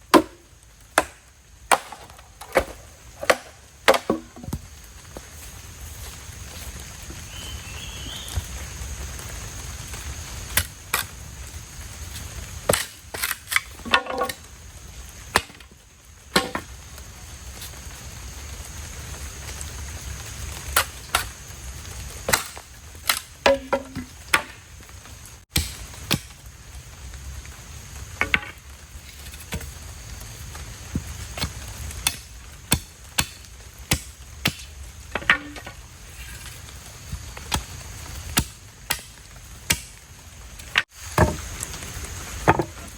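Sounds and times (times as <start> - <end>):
blade chopping wood: 0.1 - 4.7, 12.7 - 14.4, 15.3 - 15.7, 16.4 - 16.7, 22.3 - 24.6, 25.5 - 26.4, 28.2 - 28.6, 31.4 - 35.8, 37.5 - 40.0, 40.7 - 41.5.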